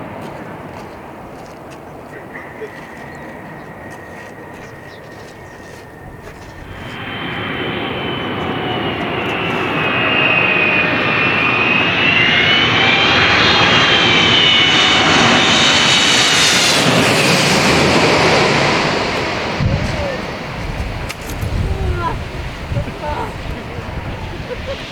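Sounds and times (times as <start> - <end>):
airliner passing overhead: 0.0 - 24.9
high engine whine: 3.0 - 24.9.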